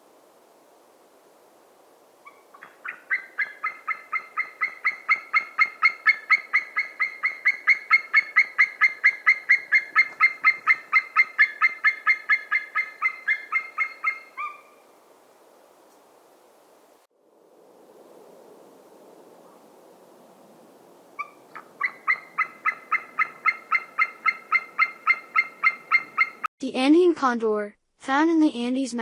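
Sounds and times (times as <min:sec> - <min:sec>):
eagle calling: 0:02.2 - 0:14.9, 0:21.2 - 0:26.5.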